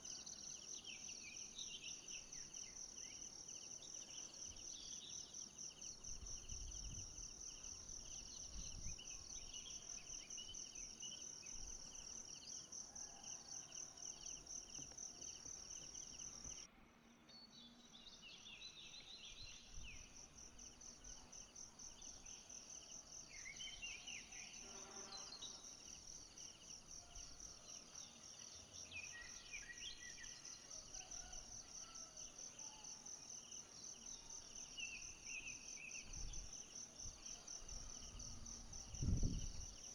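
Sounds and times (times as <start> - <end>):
lower pulsing insect call: 0.0 - 39.9
insects trilling: 18.5 - 39.9.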